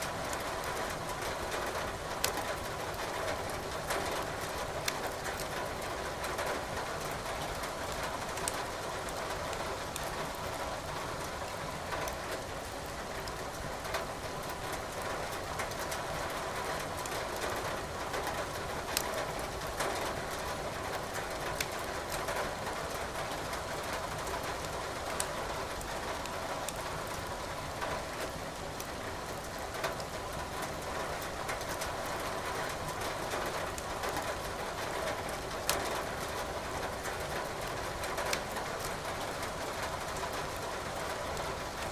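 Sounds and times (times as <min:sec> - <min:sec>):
rain falling: 0:00.0 - 0:41.9
wood fire crackling and popping: 0:04.8 - 0:05.5.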